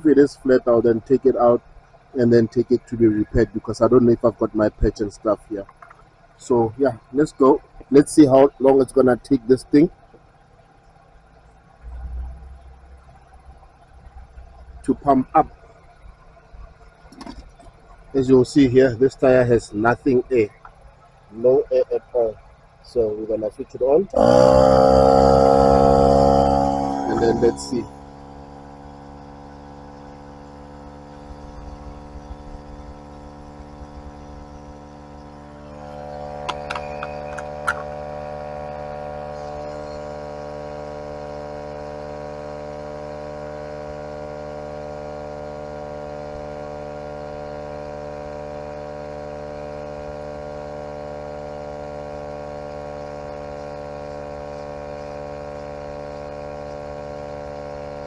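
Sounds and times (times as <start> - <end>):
air compressor droning hum: 0.0 - 58.0
sharp clicks: 36.4 - 38.0.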